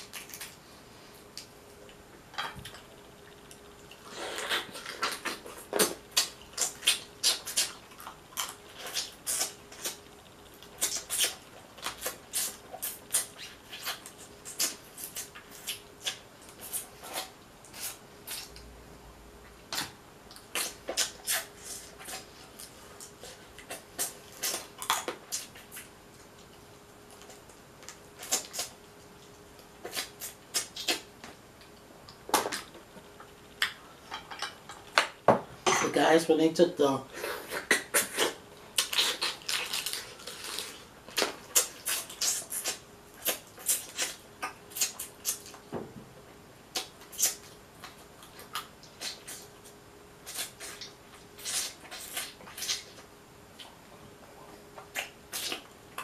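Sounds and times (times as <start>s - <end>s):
wet chewing and lip-smacking: 37.6s - 45.7s.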